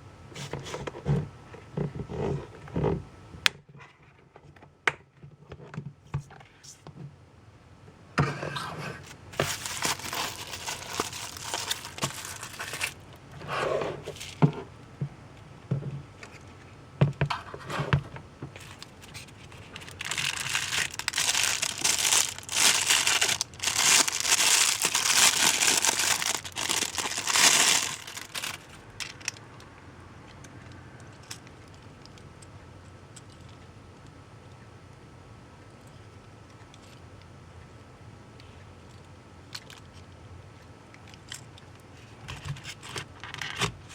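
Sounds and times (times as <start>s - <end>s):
packaging crinkling and tearing: 9.4s - 13.0s, 18.6s - 29.4s.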